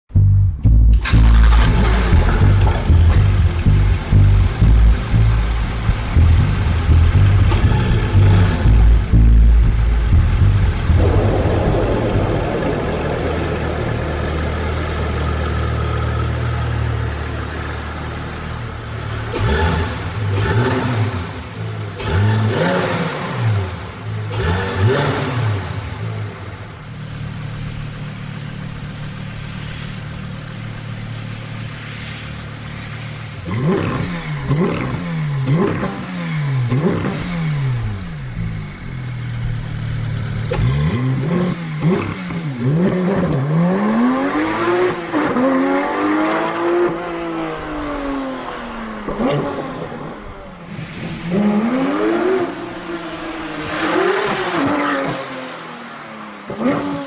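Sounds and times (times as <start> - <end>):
car engine revving: 0.1 - 57.0.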